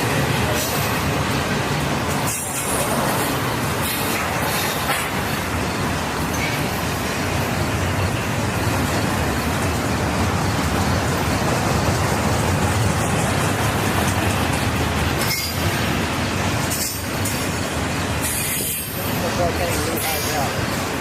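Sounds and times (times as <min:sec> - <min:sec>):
train wheels on rails: 0:00.0 - 0:21.0.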